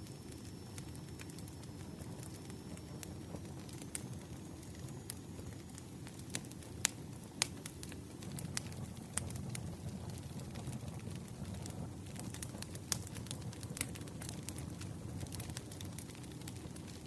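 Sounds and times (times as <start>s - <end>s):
campfire crackling: 0.0s - 17.0s
sharp pops of burning wood: 3.6s - 17.0s.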